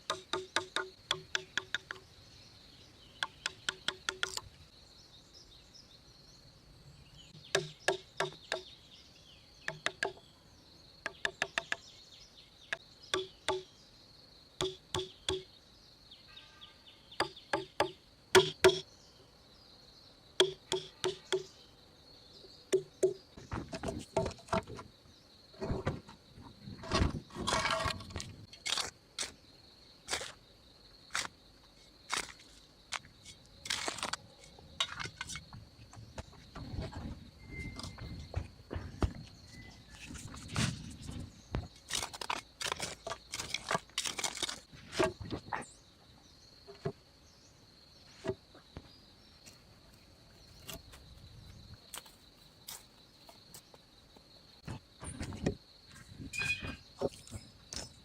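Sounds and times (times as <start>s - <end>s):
insect drone: 0.0s - 58.0s
sharp knocks on wood: 7.5s - 8.7s, 9.7s - 10.2s, 13.2s - 13.7s, 14.6s - 15.5s, 17.2s - 18.8s, 20.4s - 21.5s, 22.7s - 24.8s.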